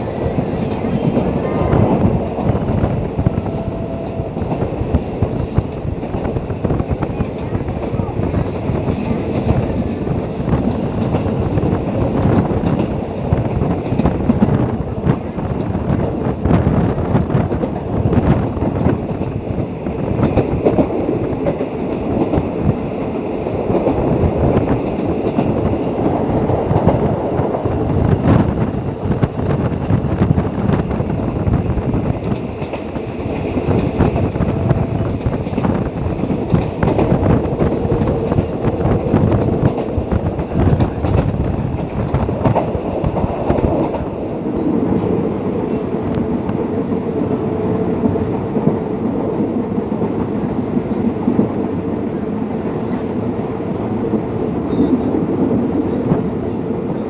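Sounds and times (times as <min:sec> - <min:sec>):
clickety-clack over rail joints: 0:00.0 - 0:57.0
train wheels rumbling on track: 0:00.0 - 0:57.0.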